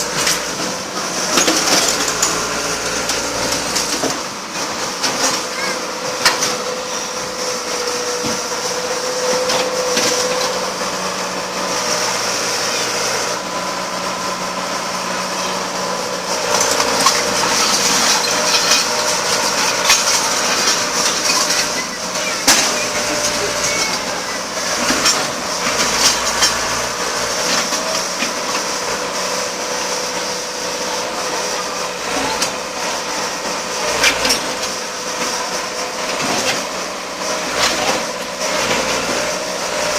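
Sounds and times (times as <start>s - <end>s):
engine humming: 0.0s - 39.9s
metal wheels grinding on concrete: 0.0s - 39.9s.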